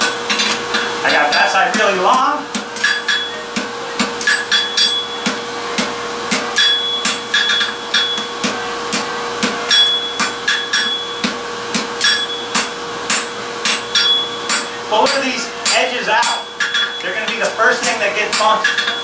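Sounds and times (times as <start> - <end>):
hammer striking steel on anvil: 0.0 - 19.0
steady hum: 0.0 - 19.0
high metallic ring: 4.2 - 5.4, 6.6 - 8.4, 9.7 - 11.2, 12.0 - 17.4, 18.3 - 19.0.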